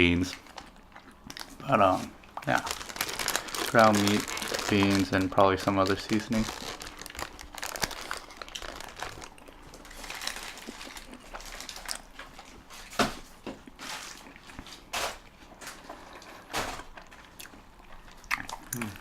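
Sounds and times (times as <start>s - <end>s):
biting and chewing: 0.3s - 5.1s, 6.3s - 13.0s, 13.6s - 19.0s
paper wrapper crinkling: 1.3s - 13.1s.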